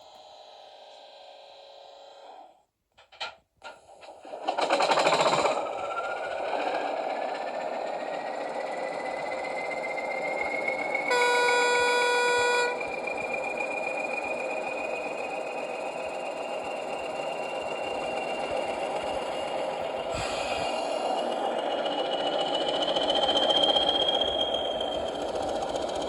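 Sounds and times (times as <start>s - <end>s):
diesel engine sound with whine: 5.3s - 26.0s
model locomotive horn blast: 11.0s - 13.2s.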